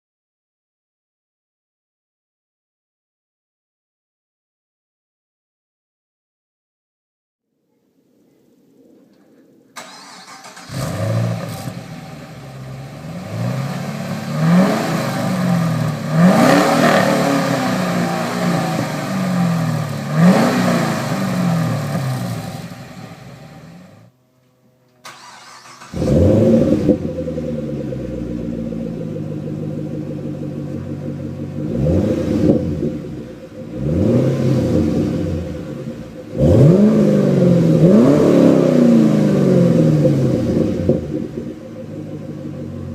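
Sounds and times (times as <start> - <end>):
engine revving through exhaust: 10.4 - 24.1, 25.6 - 42.9.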